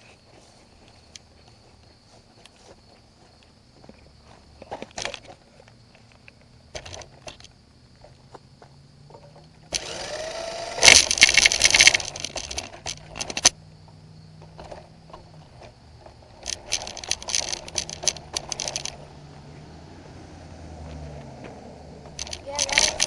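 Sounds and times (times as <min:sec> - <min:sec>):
rc car clattering and rattling: 0:04.8 - 0:05.4, 0:06.7 - 0:07.6, 0:09.1 - 0:13.6, 0:14.5 - 0:19.0, 0:22.1 - 0:23.0
electric motor whining: 0:09.7 - 0:12.8.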